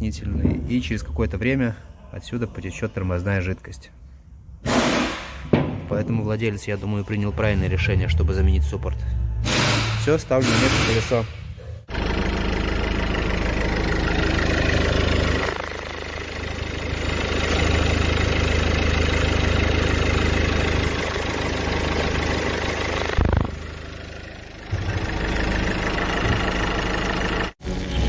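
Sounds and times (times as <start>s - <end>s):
car engine running: 11.8s - 27.6s.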